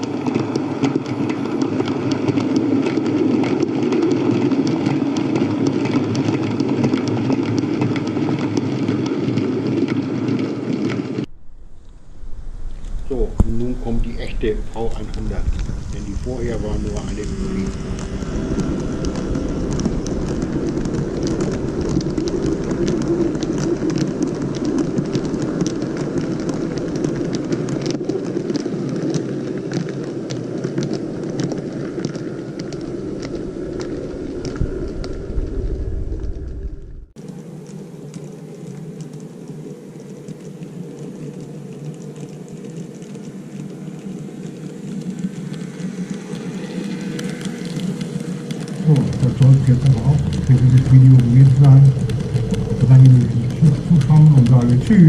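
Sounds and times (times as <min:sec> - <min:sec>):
model train motor and wheels rumbling: 0:09.7 - 0:30.2, 0:45.0 - 0:55.0
wheels clicking on rails: 0:45.0 - 0:55.0.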